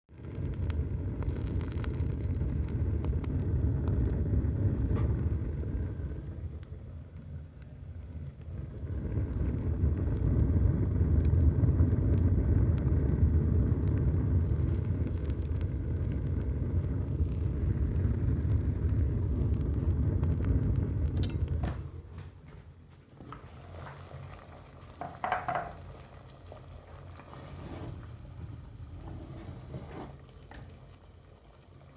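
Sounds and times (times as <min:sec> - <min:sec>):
fire crackling faintly: 0:00.1 - 0:31.9
stove fire rumbling: 0:00.1 - 0:31.9.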